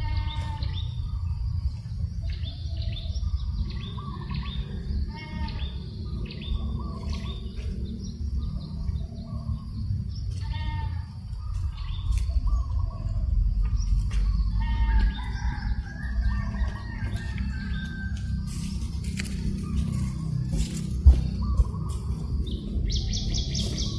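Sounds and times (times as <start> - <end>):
birds chirping: 0.0 - 23.9.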